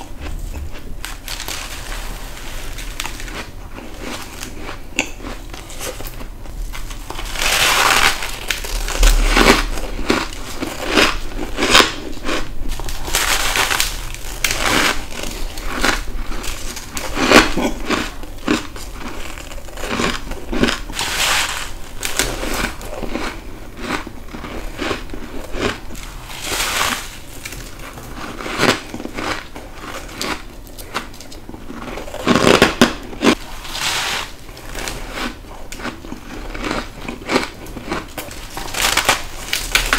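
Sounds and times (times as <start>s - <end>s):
biting and crunching ice: 6.9s - 33.4s, 34.6s - 39.9s.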